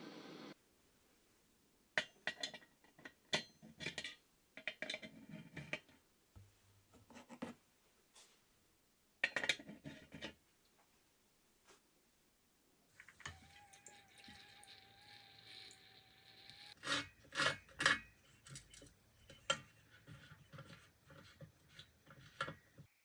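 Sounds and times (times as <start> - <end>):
small metal parts clinking: 13.0 - 22.8.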